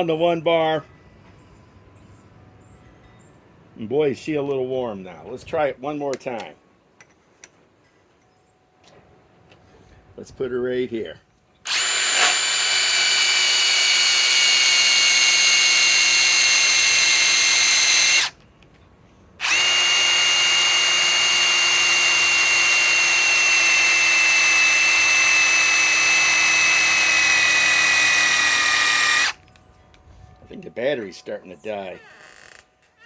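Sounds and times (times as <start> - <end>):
impact wrench whining: 11.6 - 18.4, 19.4 - 29.4.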